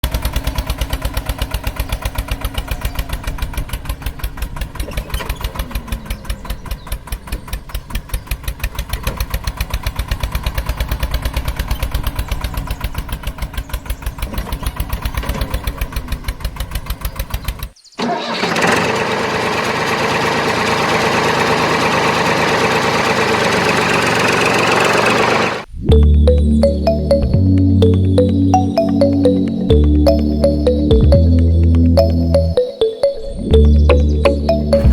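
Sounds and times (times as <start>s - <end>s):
small engine chugging: 0.0s - 25.7s.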